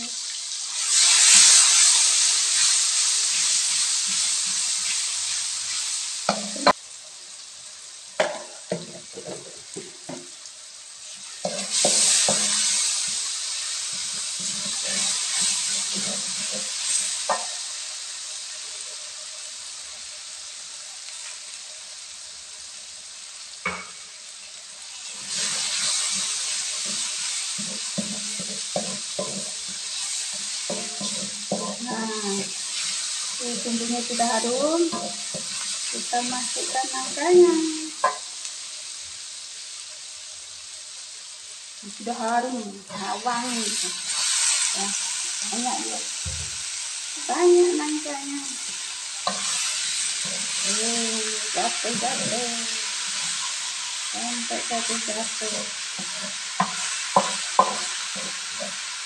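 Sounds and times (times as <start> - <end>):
garlic sizzling in hot oil: 0.0 - 59.0
wooden spatula stirring and scraping: 8.7 - 10.3, 11.2 - 13.3, 13.9 - 17.6, 25.3 - 38.2, 47.3 - 52.4, 54.4 - 58.9.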